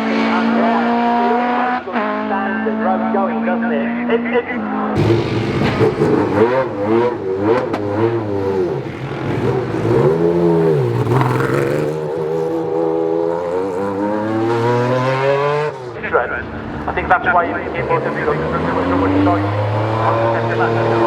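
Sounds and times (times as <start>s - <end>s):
rally car engine revving: 0.0s - 21.0s.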